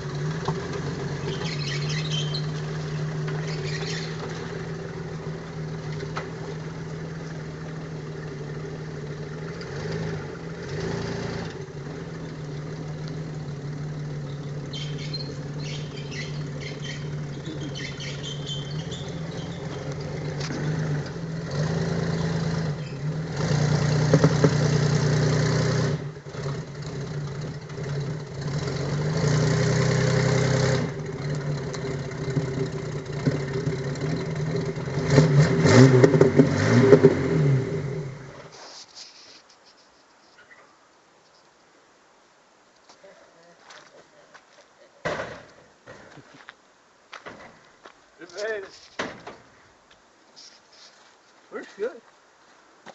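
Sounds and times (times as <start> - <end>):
tractor engine running: 0.0 - 38.6.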